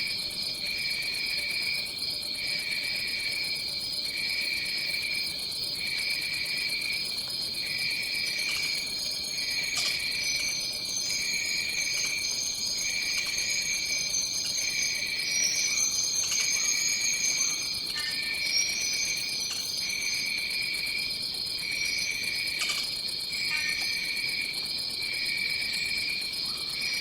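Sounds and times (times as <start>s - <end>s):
insects trilling: 0.0s - 27.0s
thin high insect tone: 2.4s - 20.9s
pulsing insect chirring: 7.8s - 20.3s.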